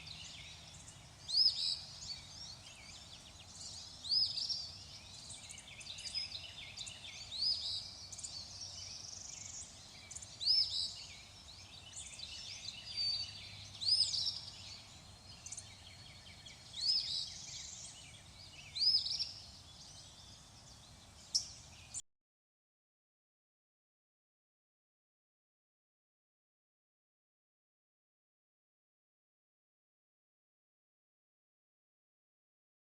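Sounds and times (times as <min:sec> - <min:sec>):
birds chirping and calling: 0:00.0 - 0:22.0
faint steady hiss: 0:00.0 - 0:22.0.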